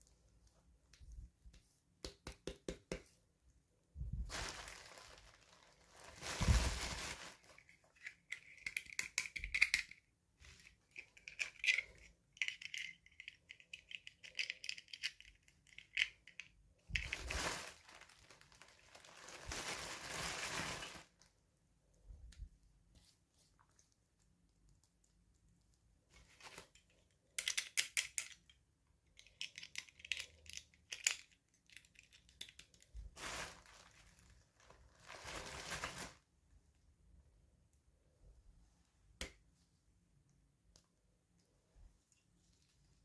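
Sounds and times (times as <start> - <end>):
packaging tearing and rustling: 4.3 - 7.7, 17.0 - 21.2, 33.2 - 36.2.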